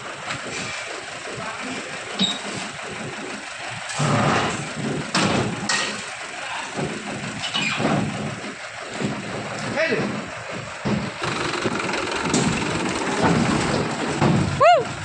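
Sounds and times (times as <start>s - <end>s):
tractor engine running: 0.0s - 15.0s
metal clanks: 3.9s - 6.1s.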